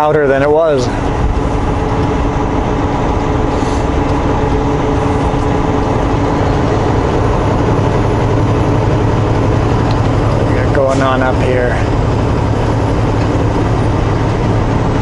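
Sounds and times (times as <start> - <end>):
steady hum tones: 0.0 - 15.0
truck engine and road noise: 0.0 - 15.0.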